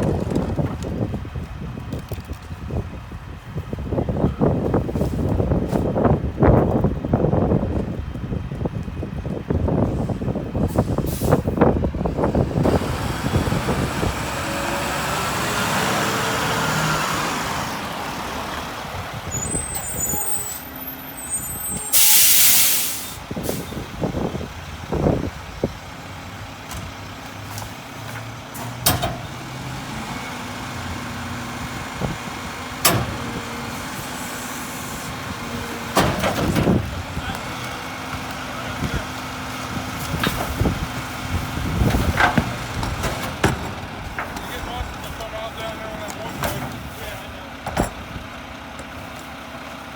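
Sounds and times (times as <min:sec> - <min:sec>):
garbage truck diesel engine revving: 0:10.5 - 0:49.9
loud air-brake hiss: 0:21.4 - 0:23.7.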